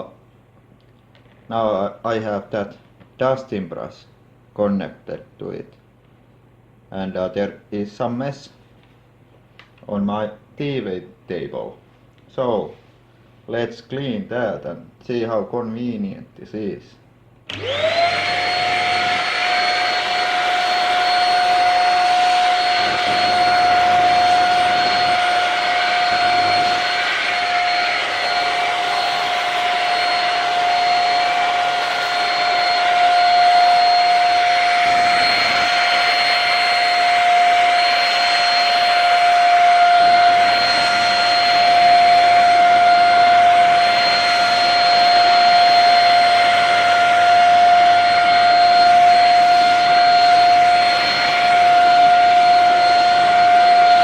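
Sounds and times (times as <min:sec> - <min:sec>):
stick vacuum motor whine: 0:17.5 - 0:54.0.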